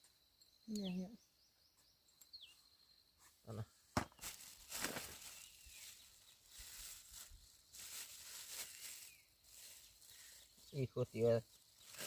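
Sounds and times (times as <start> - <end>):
bird chirping faintly: 0.0 - 4.4, 5.1 - 7.6
rustling and scraping: 4.0 - 10.2, 11.8 - 12.0.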